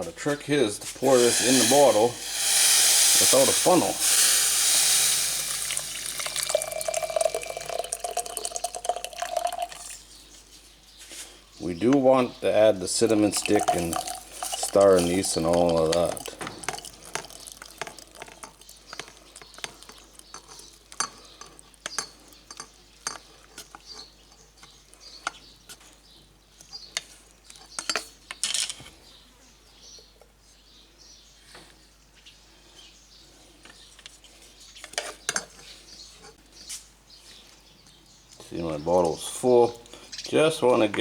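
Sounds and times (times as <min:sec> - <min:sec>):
utensil clinking against glass bottle: 0:01.0 - 0:10.0, 0:13.0 - 0:23.3.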